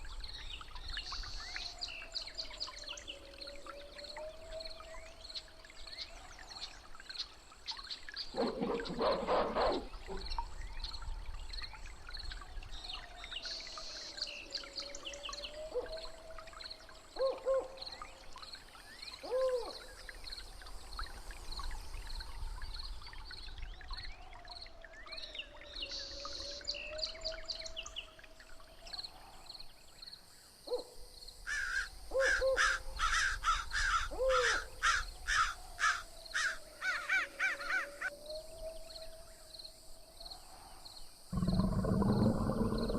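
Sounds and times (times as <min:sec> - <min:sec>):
bird calls: 0:08.2 - 0:10.5, 0:31.5 - 0:38.1.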